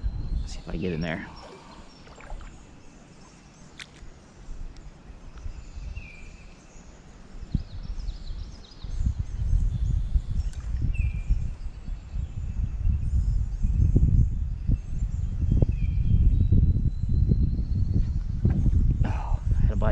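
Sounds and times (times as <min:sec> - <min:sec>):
birds chirping: 0:00.0 - 0:19.9
creek ambience: 0:00.4 - 0:07.5.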